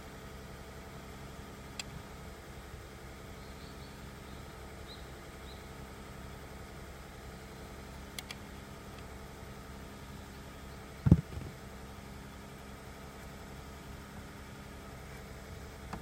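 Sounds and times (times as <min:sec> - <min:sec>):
faint light clicks: 0:08.1 - 0:09.1
low hum: 0:10.0 - 0:11.9
dull knock: 0:11.1 - 0:11.6.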